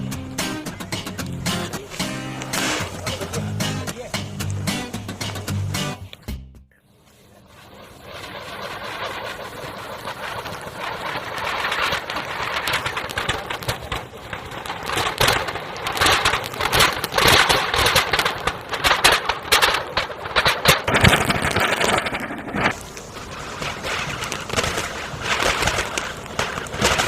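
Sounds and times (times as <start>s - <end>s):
table fan whirring: 7.2s - 27.0s.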